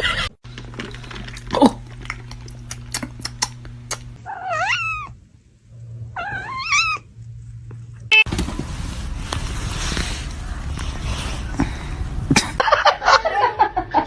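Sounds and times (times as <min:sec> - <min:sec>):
low steady hum: 0:00.1 - 0:14.0
cat meowing: 0:04.2 - 0:05.2, 0:06.2 - 0:07.1.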